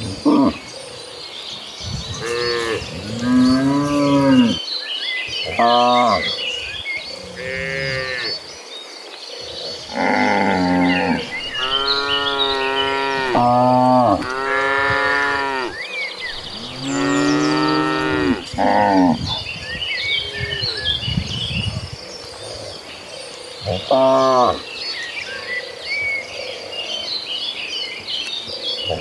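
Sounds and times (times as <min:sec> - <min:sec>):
cows mooing: 0:02.2 - 0:04.6, 0:07.2 - 0:08.4, 0:09.9 - 0:19.4.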